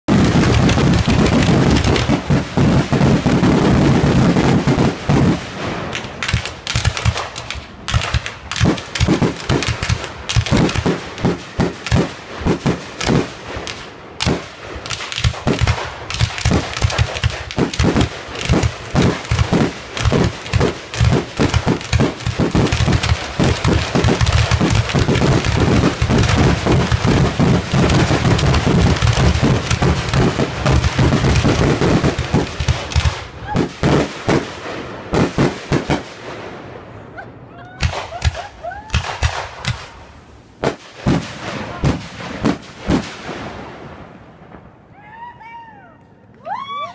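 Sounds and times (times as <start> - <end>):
fireworks cracks and bangs: 0.0 - 37.0, 37.8 - 44.9.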